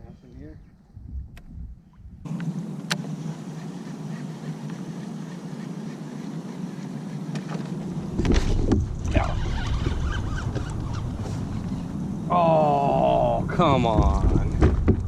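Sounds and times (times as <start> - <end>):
wind buffeting microphone: 0.0 - 2.4, 6.2 - 15.0
outdoor noise on open water: 1.7 - 15.0.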